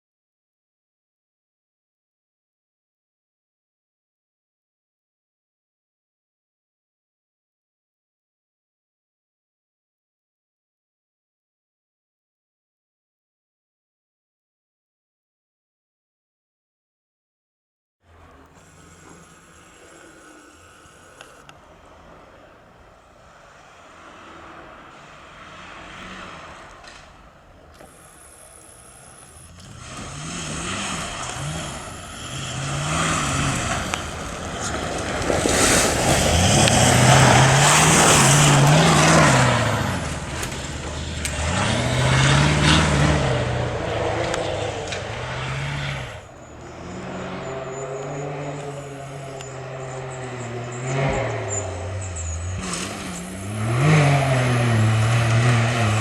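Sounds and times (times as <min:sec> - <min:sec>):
vehicle engine revving: 0:18.0 - 0:56.0
tyre and spray noise: 0:18.1 - 0:46.4, 0:50.9 - 0:56.0.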